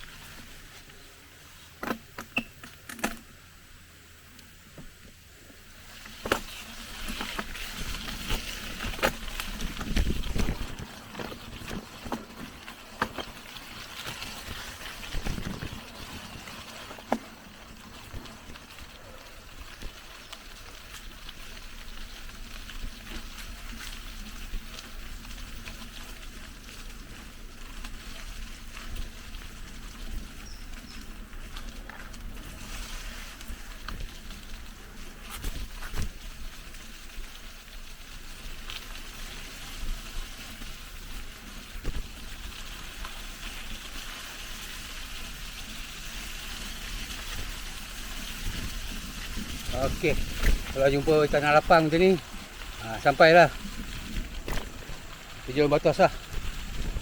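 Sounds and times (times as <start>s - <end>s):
steady high hiss: 0.0s - 10.6s
bike rolling on rough trail: 0.0s - 57.0s
bike knocks and rattles: 6.1s - 18.9s, 54.0s - 55.1s.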